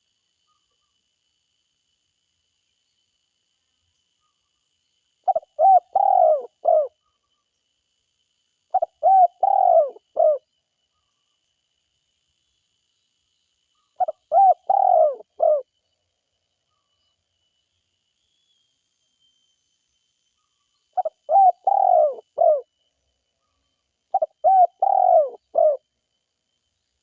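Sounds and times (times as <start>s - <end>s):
dove cooing: 5.3s - 6.9s, 8.7s - 10.4s, 14.0s - 15.6s, 21.0s - 22.7s, 24.1s - 25.8s.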